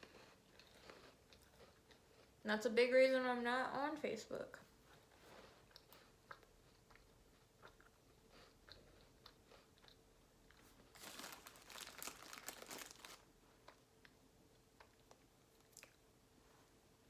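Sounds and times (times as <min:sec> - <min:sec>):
faint chewing with clicks: 0:00.0 - 0:02.4, 0:04.6 - 0:16.2
crackers crunching: 0:08.7 - 0:16.0.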